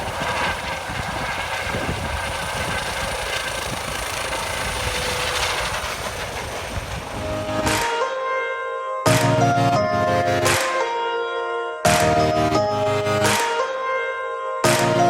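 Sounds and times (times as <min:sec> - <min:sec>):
helicopter taking off: 0:00.0 - 0:08.4.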